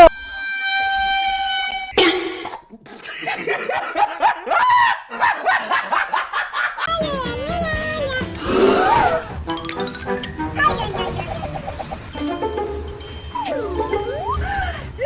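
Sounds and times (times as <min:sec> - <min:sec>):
cartoon-style giggling: 0:10.6 - 0:12.4.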